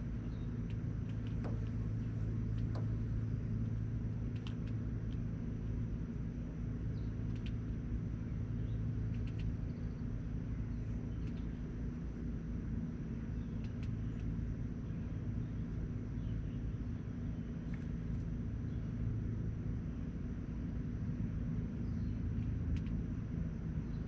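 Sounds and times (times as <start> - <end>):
low rumble with hum: 0.0 - 24.0.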